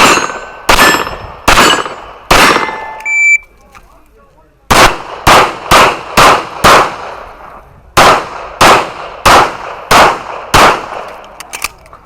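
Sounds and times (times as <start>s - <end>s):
handgun shots with echo: 0.0s - 3.0s, 4.7s - 7.2s, 8.0s - 11.8s.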